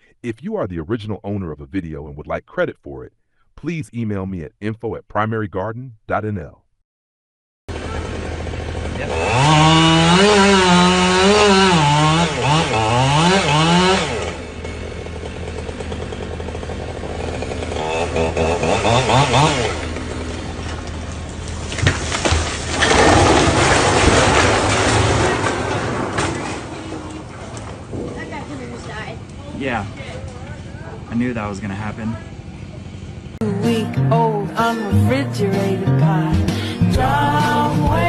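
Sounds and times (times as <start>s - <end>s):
chainsaw cutting at high revs: 7.7s - 20.6s
loud crashing: 21.7s - 29.3s.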